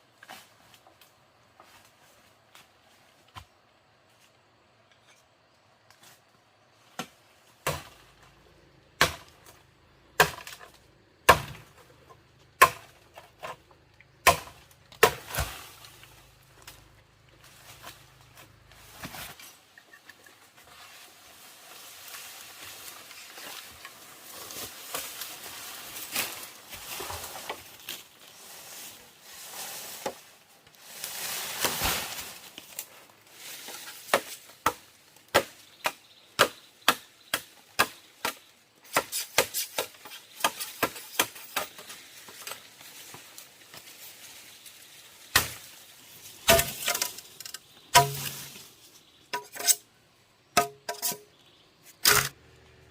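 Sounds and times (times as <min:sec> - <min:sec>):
rustling noise: 0:15.7 - 0:34.5
blade chopping: 0:48.0 - 0:48.5, 0:52.0 - 0:52.4.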